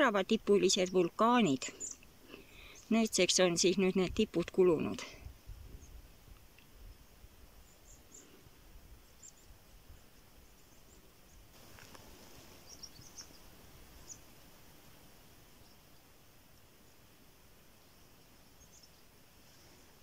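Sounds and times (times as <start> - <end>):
faint high bird chirps: 0.5 - 3.8, 9.0 - 11.4, 12.6 - 14.3, 17.8 - 19.8.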